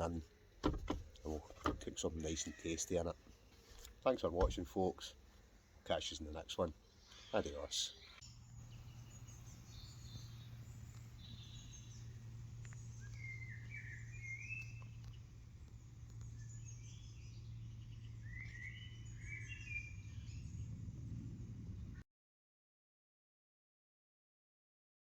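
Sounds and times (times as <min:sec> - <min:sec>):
small birds chirping: 0:00.0 - 0:22.0
low background hum: 0:08.1 - 0:22.0.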